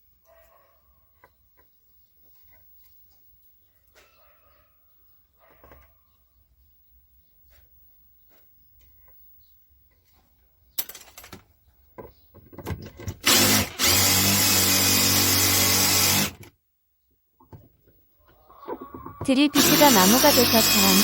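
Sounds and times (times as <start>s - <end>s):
power drill boring into wood: 13.2s - 16.5s, 19.4s - 21.0s.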